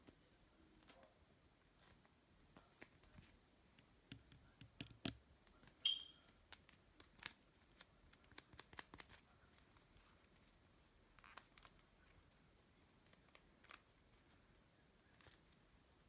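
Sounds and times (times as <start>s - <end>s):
high squeak: 5.8s - 6.2s.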